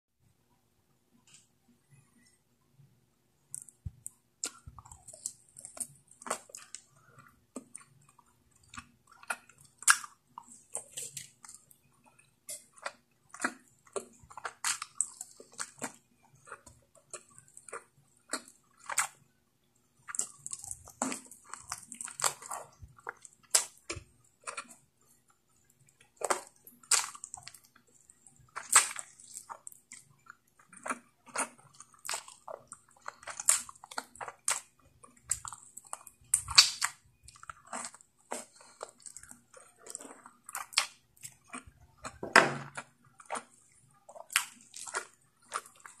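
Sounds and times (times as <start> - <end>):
wet chewing and lip smacking: 3.5 - 19.3, 19.9 - 46.0.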